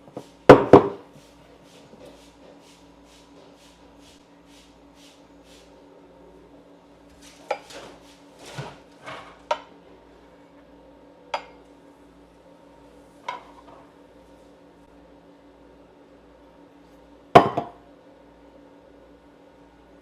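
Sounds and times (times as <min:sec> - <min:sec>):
cups clinking: 0:17.4 - 0:17.8.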